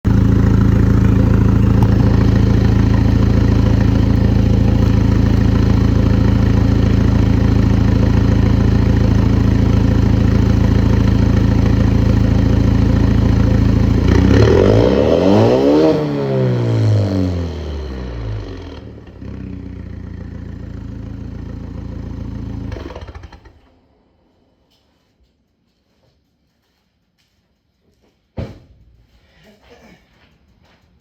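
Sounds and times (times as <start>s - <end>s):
car engine idling and revving: 0.1s - 23.8s.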